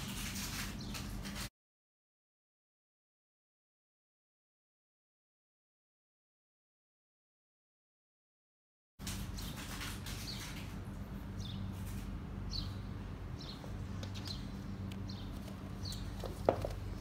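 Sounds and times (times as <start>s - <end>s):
small birds chirping: 0.5s - 1.2s, 9.3s - 17.0s
steady low hum: 9.0s - 17.0s.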